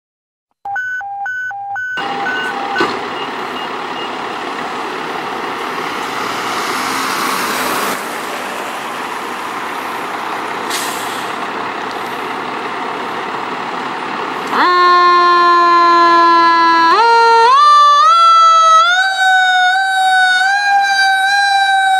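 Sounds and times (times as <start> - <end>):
backup alarm beeping: 0.6 - 4.2
loud siren: 1.9 - 4.2, 14.4 - 21.9
truck engine running with hiss: 2.0 - 14.6.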